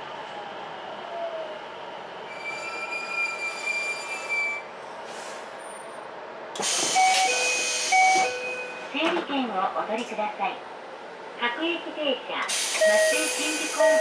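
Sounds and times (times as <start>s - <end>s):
train brake squeal: 2.3s - 4.7s, 6.6s - 8.4s, 12.6s - 14.0s
air hiss of doors opening: 5.0s - 5.5s, 6.6s - 8.0s, 12.5s - 13.5s.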